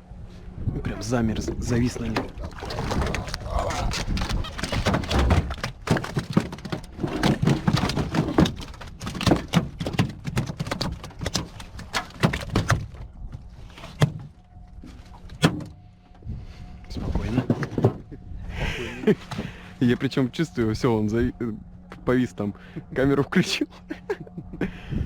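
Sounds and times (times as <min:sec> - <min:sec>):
knocks and thumps: 0:03.9 - 0:13.0, 0:17.4 - 0:18.1.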